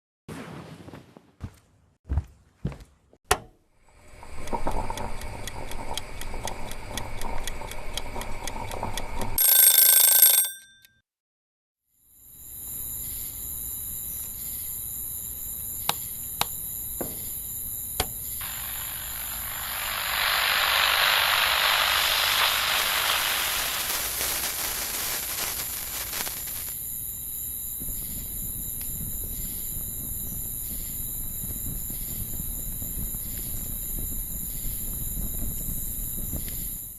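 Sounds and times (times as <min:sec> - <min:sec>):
steady high hiss: 0:12.4 - 0:27.3
firework cracks: 0:18.4 - 0:26.8
firework hissing whoosh: 0:18.4 - 0:26.8.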